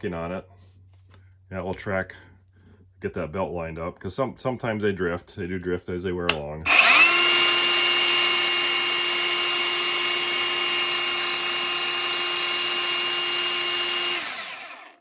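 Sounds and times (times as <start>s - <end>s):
belt sander high whine: 6.7s - 15.0s.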